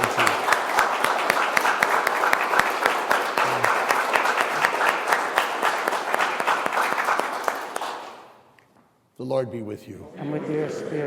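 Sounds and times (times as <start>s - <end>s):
congregation applauding: 0.0s - 8.5s.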